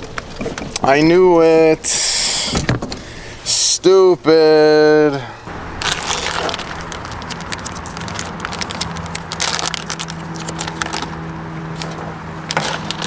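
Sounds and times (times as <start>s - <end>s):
boat motor humming: 5.2s - 13.0s.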